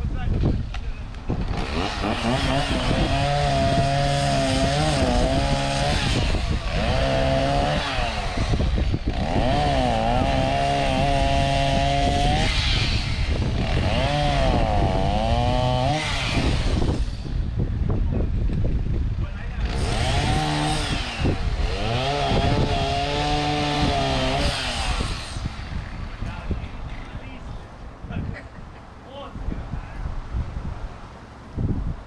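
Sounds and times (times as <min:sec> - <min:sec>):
chainsaw cutting wood: 0:00.7 - 0:17.6, 0:19.5 - 0:27.2.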